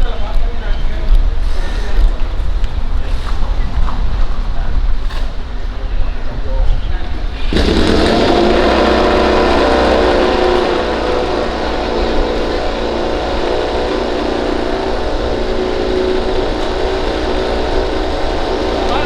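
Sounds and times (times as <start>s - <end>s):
racing motorcycle engine: 7.1s - 19.0s.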